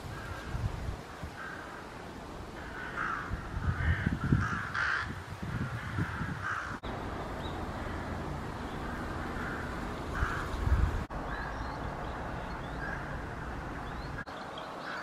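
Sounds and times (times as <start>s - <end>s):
crow cawing: 1.2s - 1.9s, 2.6s - 6.8s, 7.7s - 11.8s, 12.6s - 14.2s.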